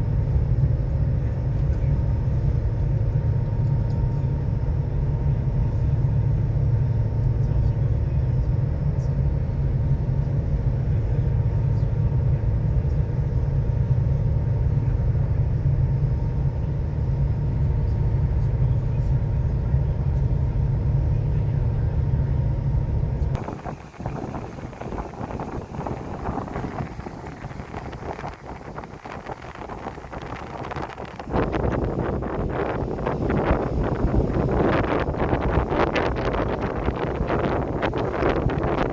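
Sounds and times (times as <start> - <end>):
ferry engine low rumble: 0.0 - 38.9
faint even hum: 22.7 - 38.9.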